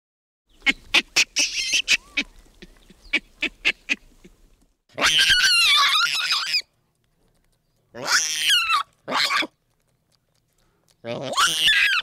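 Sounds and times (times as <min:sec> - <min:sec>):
baboon screaming: 0:00.9 - 0:02.3, 0:04.9 - 0:06.7, 0:08.0 - 0:09.6, 0:11.0 - 0:12.0
baboon barking: 0:04.9 - 0:06.6, 0:07.9 - 0:09.5, 0:11.0 - 0:12.0.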